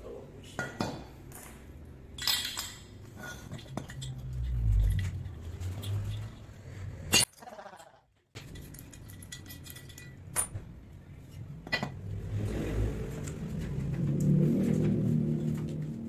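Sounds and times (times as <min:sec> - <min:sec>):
low workshop noise: 0:00.0 - 0:16.0
metal clinking: 0:00.7 - 0:07.5, 0:08.4 - 0:10.8.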